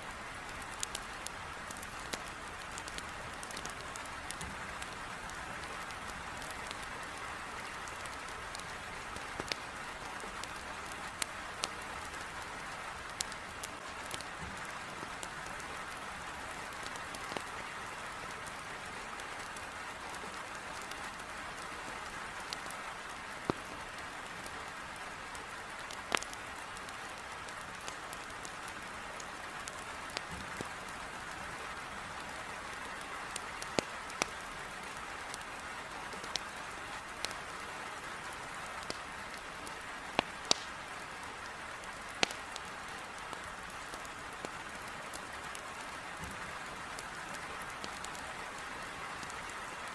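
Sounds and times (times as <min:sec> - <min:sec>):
firewood crackling: 0:00.0 - 0:49.9.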